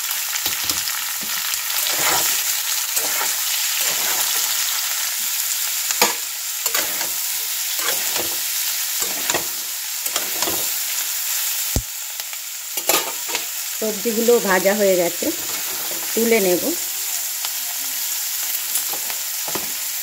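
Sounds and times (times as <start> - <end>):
vegetables sizzling in oil: 0.0 - 20.0
stirring strokes scraping: 1.8 - 4.6, 7.8 - 8.4.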